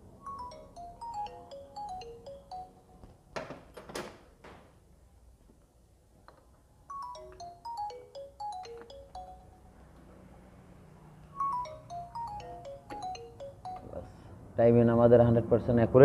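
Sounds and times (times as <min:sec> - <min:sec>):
phone ringtone melody: 0:00.0 - 0:03.1, 0:06.9 - 0:10.0, 0:11.2 - 0:14.4.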